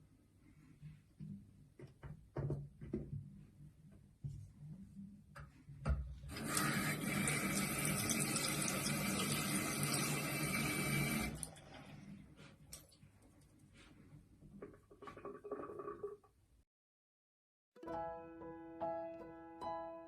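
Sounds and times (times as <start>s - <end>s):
running water: 6.3s - 13.0s.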